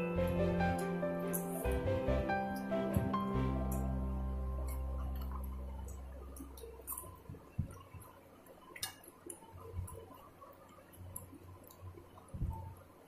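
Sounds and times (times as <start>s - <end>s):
soft low thumps: 2.9s - 8.1s.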